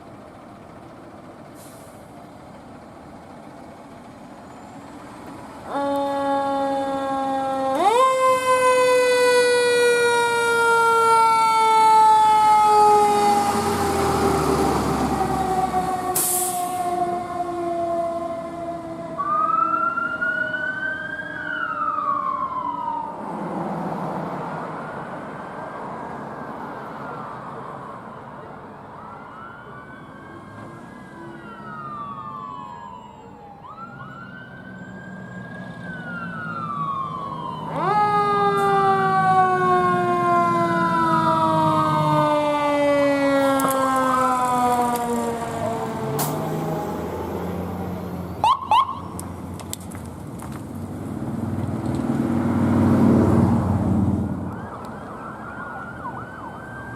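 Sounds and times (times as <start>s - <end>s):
heavy vehicle rumbling past: 8.4s - 20.2s, 38.2s - 48.5s, 49.2s - 54.6s
electronic siren wailing: 16.8s - 23.2s, 48.4s - 49.1s.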